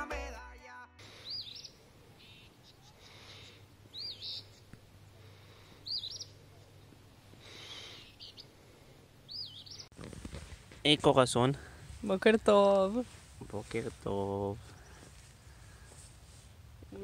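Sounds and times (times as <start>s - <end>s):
songbird calling: 1.0s - 8.6s, 9.2s - 9.9s, 14.6s - 15.9s.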